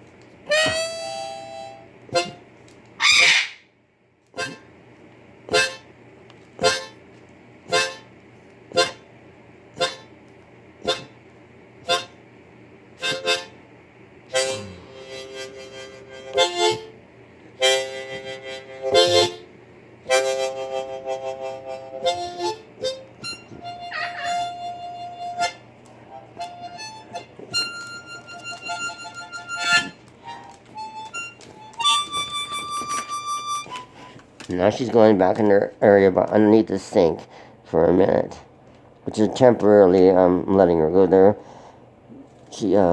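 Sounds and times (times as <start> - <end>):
bluesy harmonica notes: 0.4 - 3.3, 4.4 - 4.7, 5.5 - 5.9, 6.6 - 7.0, 7.6 - 9.1, 9.8 - 10.1, 10.8 - 11.2, 11.8 - 12.2, 13.0 - 13.7, 14.3 - 17.0, 17.6 - 34.2.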